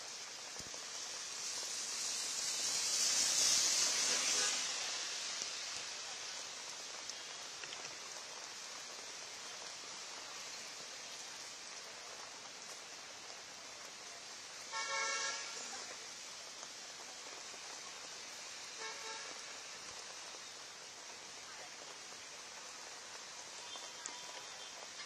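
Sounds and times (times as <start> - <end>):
heavy rain hiss: 0.0 - 25.0
street traffic: 0.1 - 25.0
vehicle horn honking: 14.7 - 15.6, 18.8 - 19.3.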